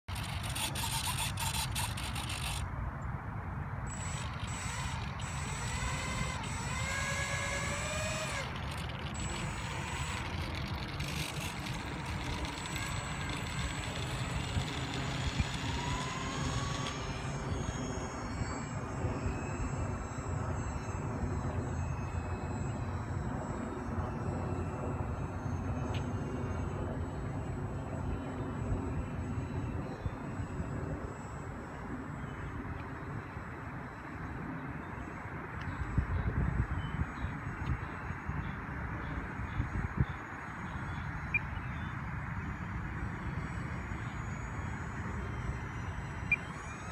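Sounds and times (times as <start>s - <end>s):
model aircraft engine rumble: 0.0s - 2.7s, 3.9s - 33.0s, 42.4s - 46.9s
rising engine whine: 0.0s - 2.8s, 3.8s - 46.9s.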